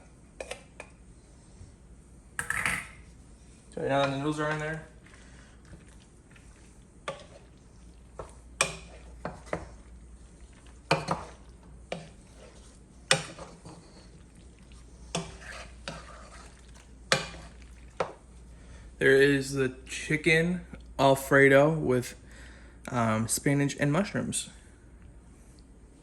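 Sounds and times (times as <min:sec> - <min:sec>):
wooden spoon stirring noodles in sauce: 0:03.0 - 0:19.0.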